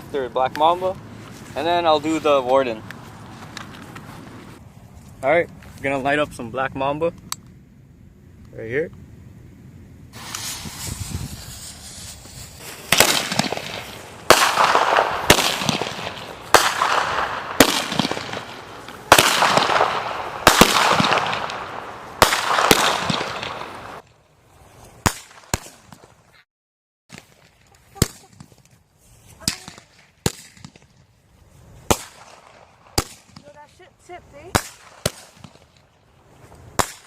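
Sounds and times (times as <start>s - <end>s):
firework shots banging and crackling: 10.2s - 24.2s, 25.0s - 26.2s, 27.1s - 28.7s, 29.4s - 31.0s, 31.8s - 36.0s, 36.7s - 37.0s.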